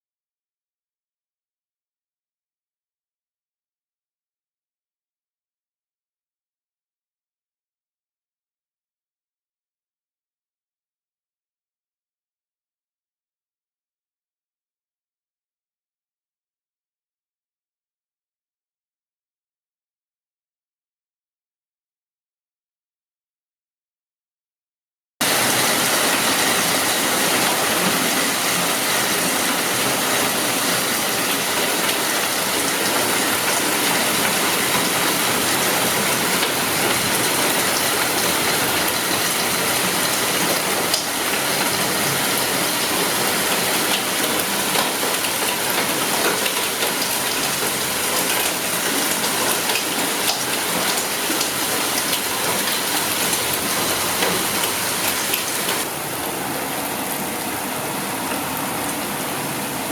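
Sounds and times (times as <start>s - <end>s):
heavy rain and hail: 25.2s - 57.0s.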